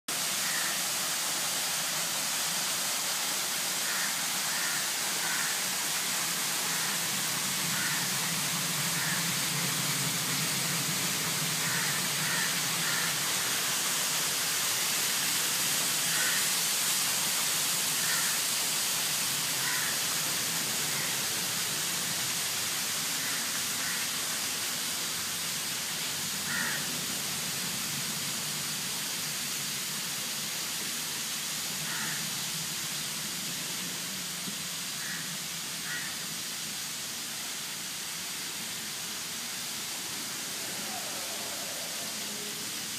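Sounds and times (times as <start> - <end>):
steady hiss: 0.1 - 42.9
crows cawing: 0.4 - 0.8, 3.8 - 5.7, 6.7 - 7.0, 7.7 - 8.2, 9.0 - 9.3, 11.6 - 13.6, 16.1 - 16.5, 18.0 - 18.4, 19.6 - 20.1, 20.9 - 21.2, 23.2 - 24.1, 26.5 - 26.9, 31.8 - 32.2, 35.0 - 36.2.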